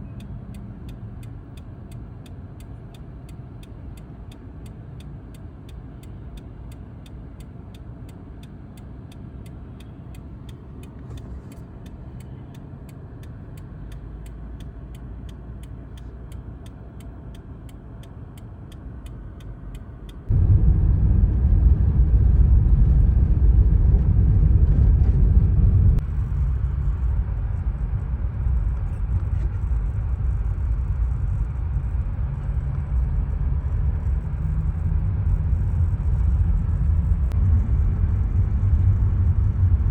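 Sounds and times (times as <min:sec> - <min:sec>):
car road and engine rumble: 0:00.0 - 0:39.9
faint regular ticking: 0:00.1 - 0:20.3.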